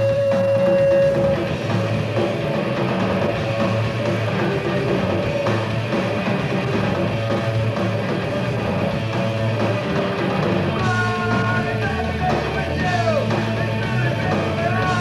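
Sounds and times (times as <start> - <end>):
punk rock band playing: 0.0 - 15.0
person singing: 10.8 - 15.0.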